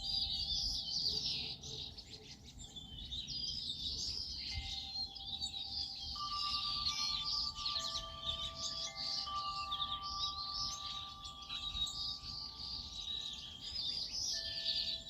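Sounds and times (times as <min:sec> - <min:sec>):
small birds chirping and trilling: 0:00.0 - 0:15.0
soft held musical tones: 0:04.4 - 0:15.0.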